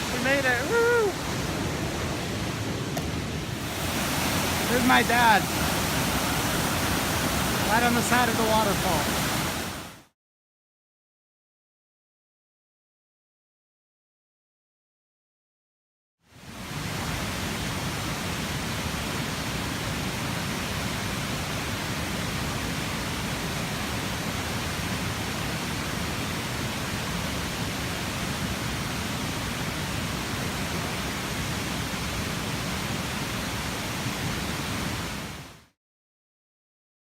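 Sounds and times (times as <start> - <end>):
waterfall roaring: 0.0 - 10.0, 16.5 - 35.5.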